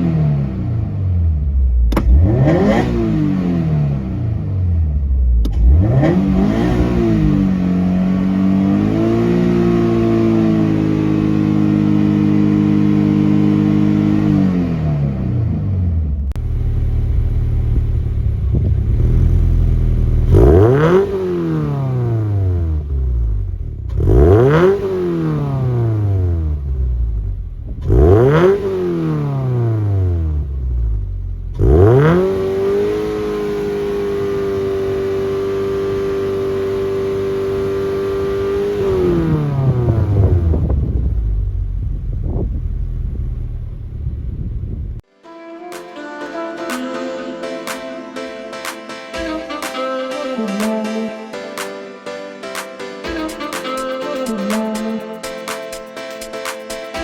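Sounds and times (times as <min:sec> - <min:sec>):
car engine revving: 0:00.0 - 0:45.0.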